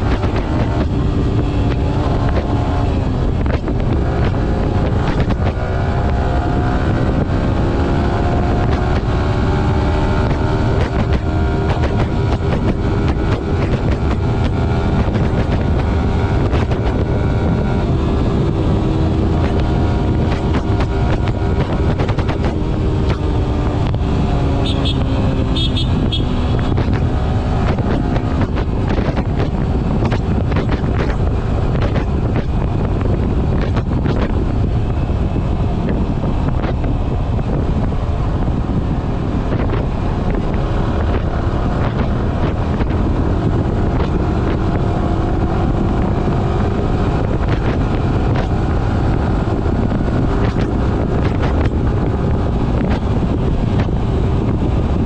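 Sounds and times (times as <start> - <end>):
motorcycle engine revving: 0.0 - 55.0
wind noise on microphone: 0.0 - 55.0.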